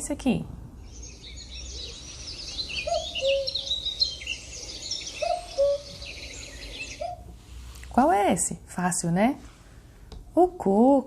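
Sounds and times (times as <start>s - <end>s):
small birds chirping: 0.8s - 7.4s
cuckoo calling: 1.0s - 7.3s.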